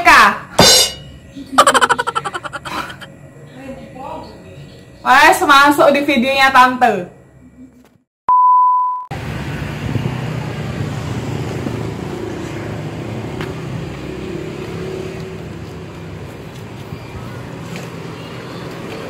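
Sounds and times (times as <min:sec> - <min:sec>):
street traffic noise: 0:09.1 - 0:19.0.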